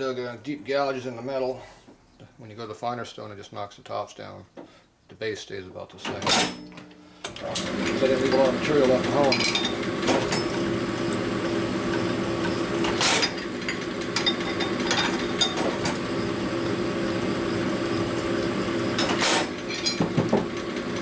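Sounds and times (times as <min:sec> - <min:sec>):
honing machine running: 0:07.4 - 0:19.8.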